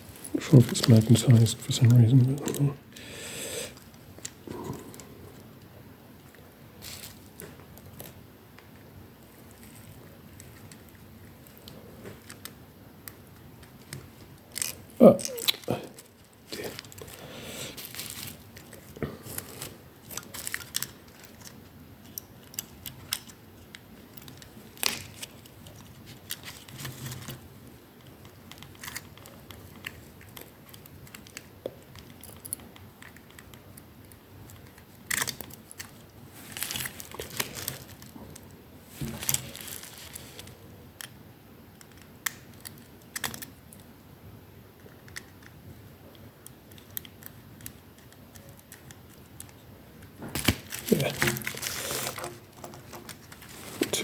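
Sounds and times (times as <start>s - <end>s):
rustling: 13.7s - 21.6s, 34.6s - 40.6s, 50.2s - 54.0s
small clicks taps and scrapes: 44.8s - 54.0s.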